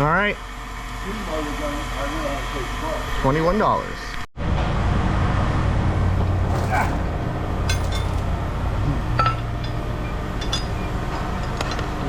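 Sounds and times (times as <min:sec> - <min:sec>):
steady low hum: 0:00.0 - 0:12.0
light metallic clinks: 0:09.2 - 0:11.9.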